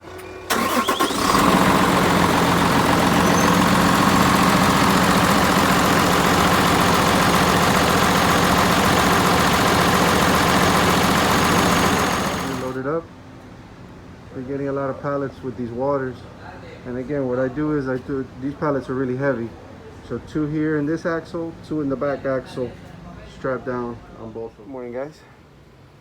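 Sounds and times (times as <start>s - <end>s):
motor starting and running: 0.1s - 12.8s.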